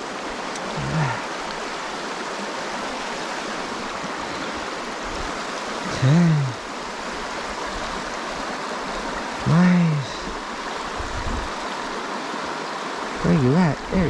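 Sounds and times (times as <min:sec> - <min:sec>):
creek water rushing: 0:00.0 - 0:14.0
person humming: 0:00.7 - 0:01.4, 0:05.9 - 0:06.6.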